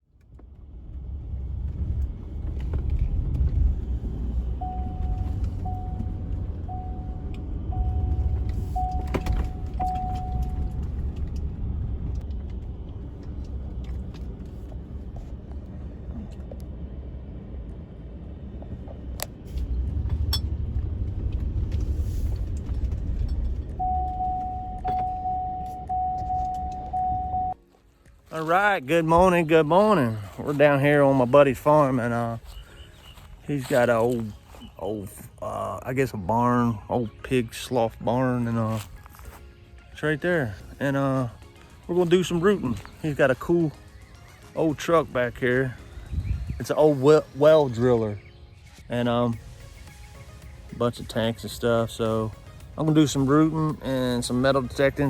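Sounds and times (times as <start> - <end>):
vehicle engine rumbling: 0.0 - 55.0
electronic warning chime beeping: 4.6 - 11.0, 23.8 - 27.6.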